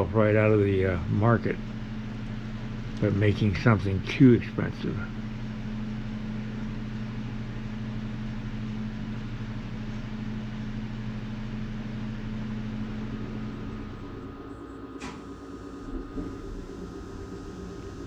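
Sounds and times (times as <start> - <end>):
heater electrical hum: 0.0 - 18.0
heater rushing noise: 12.2 - 18.0.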